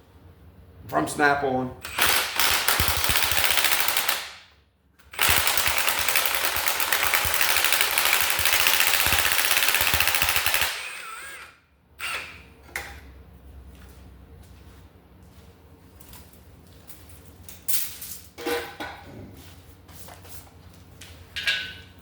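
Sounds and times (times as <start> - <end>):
impact wrench hammering: 1.9 - 4.4, 5.2 - 11.5.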